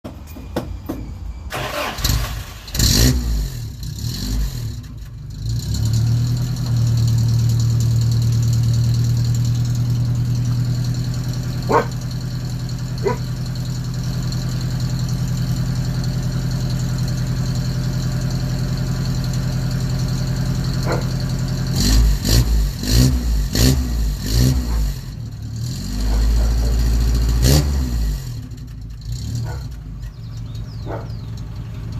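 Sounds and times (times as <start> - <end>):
car engine starting and idling: 1.4 - 31.9
engine throttle blips: 6.6 - 31.9.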